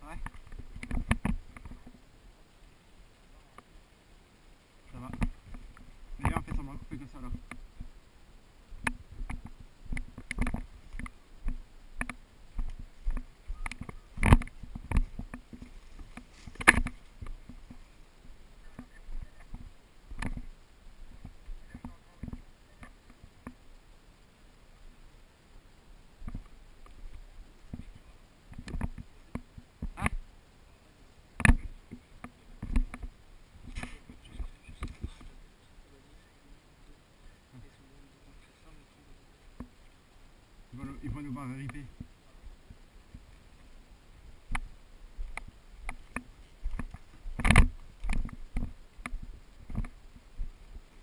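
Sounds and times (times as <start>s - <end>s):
rustles: 0.0s - 51.0s
footsteps: 8.7s - 23.6s, 41.0s - 51.0s.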